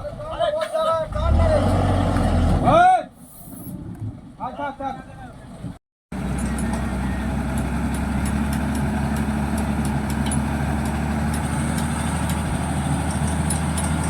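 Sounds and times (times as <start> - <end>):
diesel engine idling: 6.2 - 14.0.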